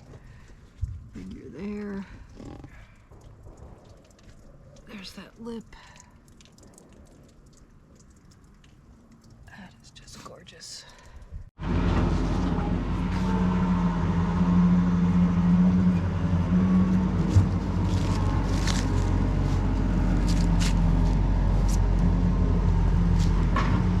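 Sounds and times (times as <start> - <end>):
engine running: 11.6 - 24.0.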